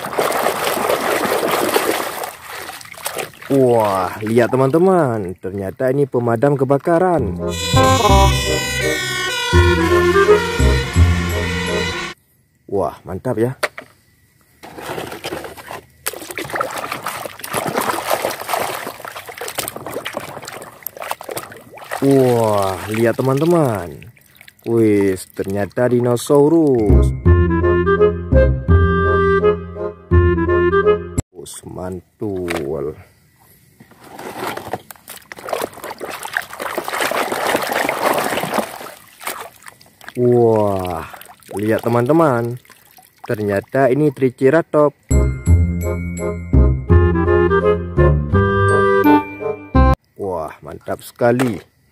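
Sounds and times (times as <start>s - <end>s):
toy sloshing in muddy water: 0.0s - 5.7s, 14.6s - 26.1s, 33.9s - 43.8s.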